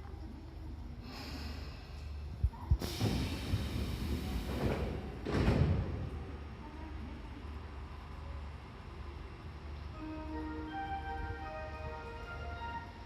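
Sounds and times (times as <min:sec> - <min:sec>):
train at station: 0:00.0 - 0:13.0
rushing hiss: 0:02.8 - 0:05.0.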